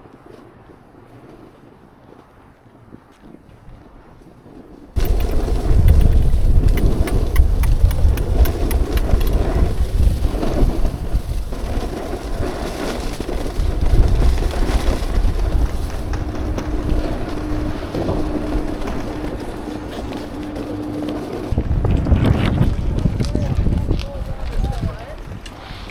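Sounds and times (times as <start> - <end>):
snowboard sliding on snow: 0.0 - 25.9
wind buffeting microphone: 2.8 - 25.9.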